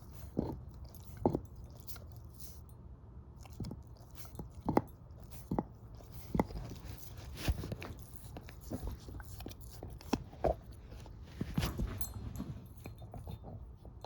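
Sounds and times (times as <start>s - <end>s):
dog chewing a bone: 0.0s - 2.6s, 3.4s - 14.0s.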